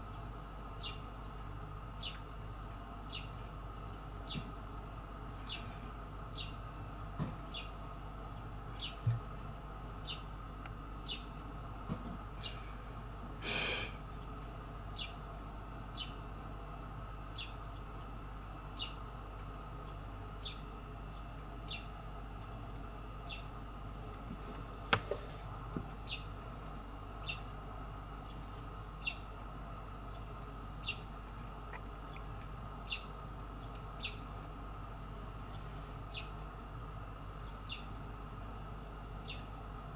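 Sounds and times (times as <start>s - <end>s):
steady low hum: 0.0s - 39.9s
small bird chirping: 0.1s - 1.4s, 2.0s - 4.5s, 5.3s - 5.7s, 6.3s - 6.6s, 10.0s - 10.3s, 11.0s - 11.5s, 14.9s - 15.2s, 15.9s - 16.2s, 17.3s - 18.0s, 18.7s - 19.0s, 19.9s - 21.9s, 26.0s - 27.5s, 28.2s - 29.3s, 30.1s - 34.3s, 35.5s - 36.4s, 39.2s - 39.5s.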